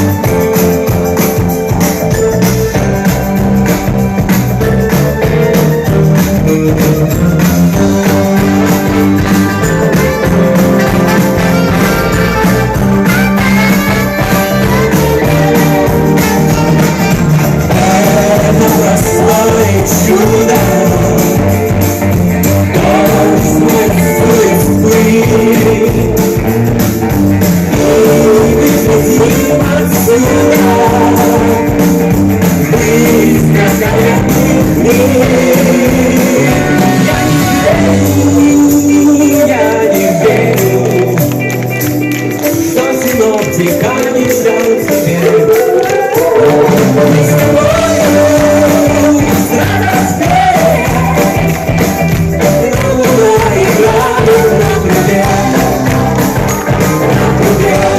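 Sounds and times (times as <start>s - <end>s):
rock and roll band with singing: 0.0s - 57.9s.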